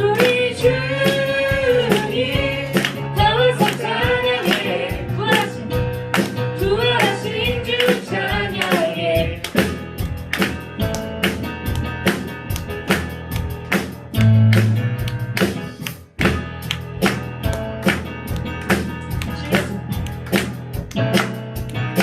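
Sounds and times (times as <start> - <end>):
band playing upbeat song: 0.0 - 22.0
congregation clapping: 1.9 - 4.8, 6.1 - 6.4, 9.4 - 22.0.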